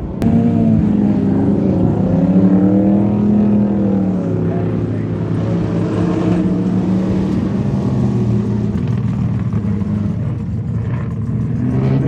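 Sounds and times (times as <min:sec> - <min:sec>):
race car engines running hard: 0:00.0 - 0:12.0.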